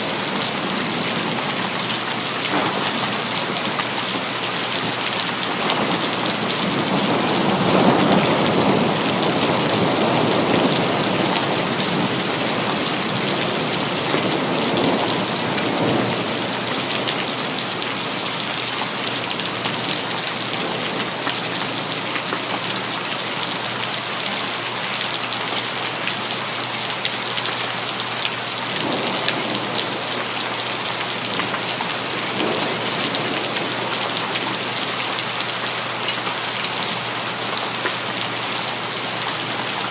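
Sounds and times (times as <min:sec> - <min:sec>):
heavy rain falling: 0:00.0 - 0:39.9
low thunder rumbles: 0:02.5 - 0:03.6, 0:28.7 - 0:30.5.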